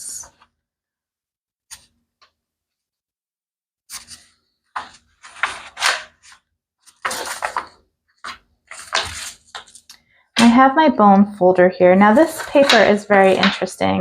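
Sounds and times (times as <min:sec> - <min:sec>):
paper rustling and crinkling: 0:03.9 - 0:09.9, 0:11.9 - 0:14.0.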